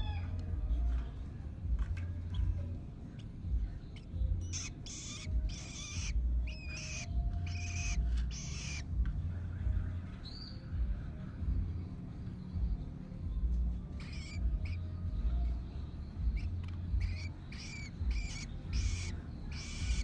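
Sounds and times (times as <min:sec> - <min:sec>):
bird hissing begging calls: 0:04.0 - 0:08.8, 0:14.0 - 0:14.8, 0:16.3 - 0:20.0
low microphone rumble: 0:05.3 - 0:17.3.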